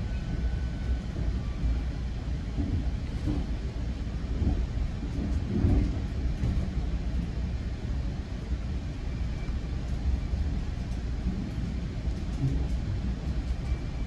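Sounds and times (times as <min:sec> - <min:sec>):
passenger train rumbling: 0:00.0 - 0:14.0.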